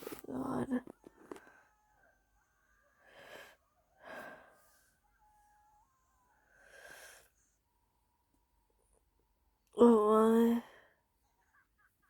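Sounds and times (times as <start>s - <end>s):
soft breath: 3.0s - 5.1s, 6.4s - 7.6s.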